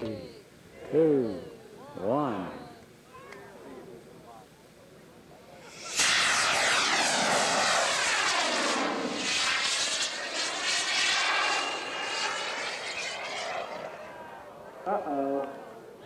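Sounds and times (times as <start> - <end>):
model aircraft engine passing by: 5.7 - 14.8.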